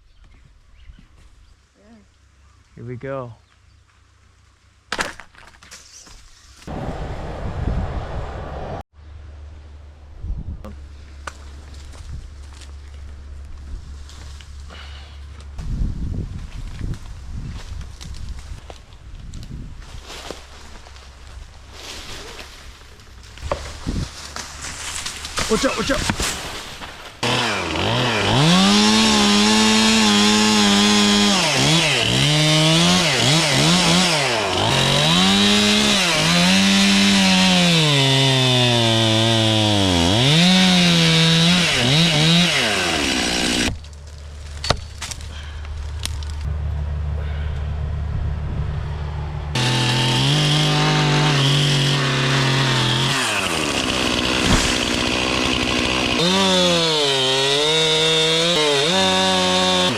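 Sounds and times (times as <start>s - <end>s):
chainsaw cutting wood: 27.2s - 43.9s, 49.5s - 59.9s.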